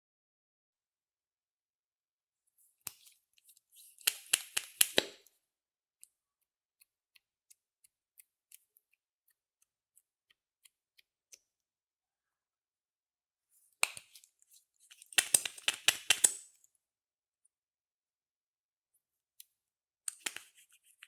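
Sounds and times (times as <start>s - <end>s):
sharp clicks of small objects: 4.0s - 5.3s, 15.0s - 16.6s, 20.1s - 20.6s.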